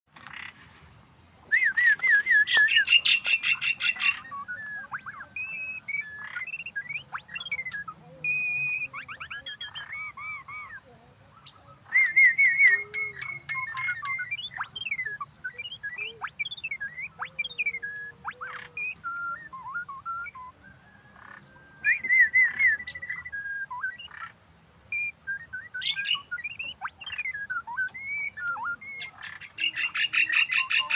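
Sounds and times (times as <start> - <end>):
bird singing whistled notes: 1.5 - 30.9.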